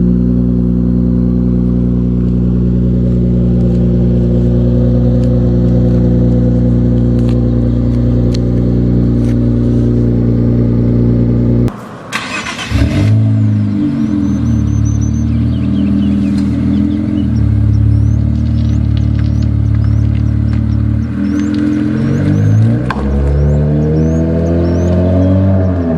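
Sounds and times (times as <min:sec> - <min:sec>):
car engine idling: 0:00.0 - 0:25.8
engine cranking and revving: 0:03.4 - 0:25.9.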